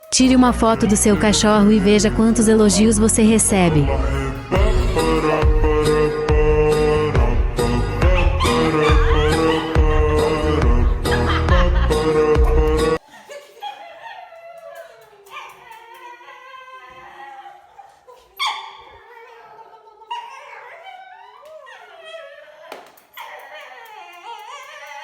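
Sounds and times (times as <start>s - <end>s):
dog howling and whining: 7.9s - 10.6s, 13.6s - 25.0s
dog yipping: 8.1s - 9.7s, 13.6s - 25.0s.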